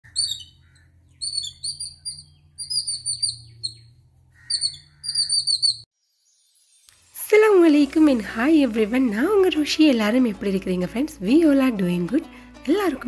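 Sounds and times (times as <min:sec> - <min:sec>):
songbird chirping: 0:00.0 - 0:07.0.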